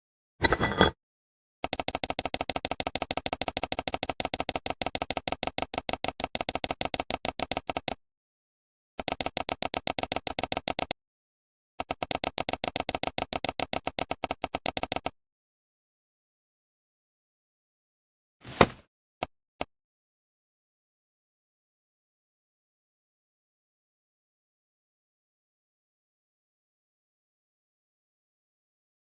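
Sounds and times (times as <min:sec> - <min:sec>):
rapid clicking rattle: 0:01.6 - 0:08.0.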